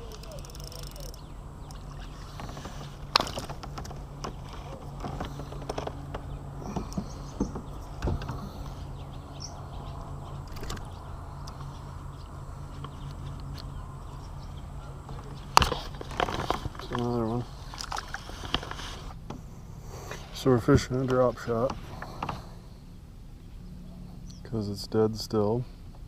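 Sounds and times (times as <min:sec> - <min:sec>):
fishing gear knocks and clicks: 0:00.0 - 0:08.4, 0:15.1 - 0:18.7
steady low hum: 0:00.0 - 0:26.0.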